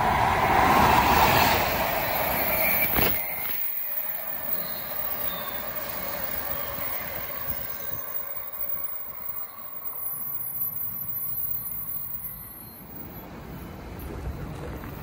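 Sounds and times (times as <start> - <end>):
passenger train running: 0.0 - 15.0
faint wheel ringing: 2.2 - 13.7.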